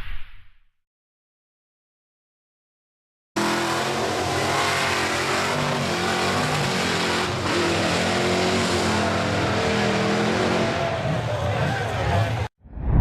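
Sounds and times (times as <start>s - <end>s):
truck engine revving high: 3.4s - 12.5s.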